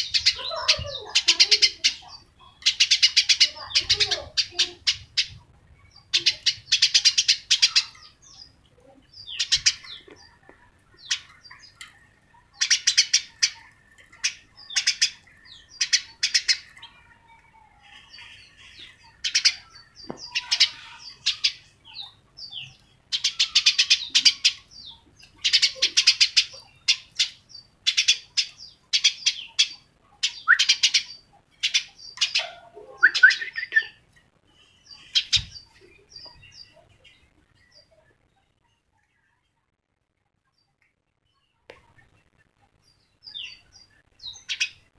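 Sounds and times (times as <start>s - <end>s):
small bird chirping: 0.0s - 39.4s, 40.4s - 44.9s.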